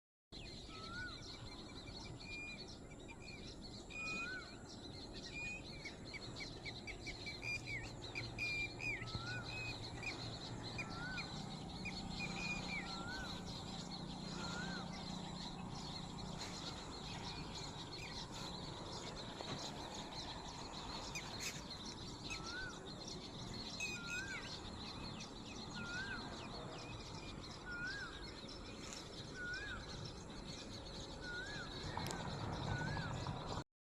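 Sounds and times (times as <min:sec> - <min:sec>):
low hum: 0:04.6 - 0:33.6
faint high drone: 0:07.2 - 0:30.2.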